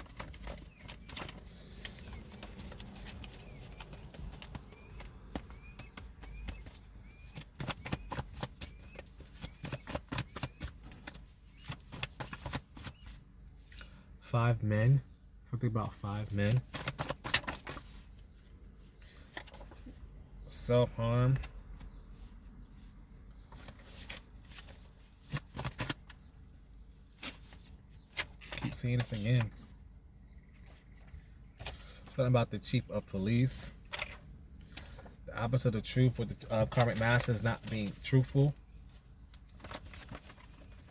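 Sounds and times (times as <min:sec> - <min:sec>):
cards being shuffled: 0:16.5 - 0:18.0.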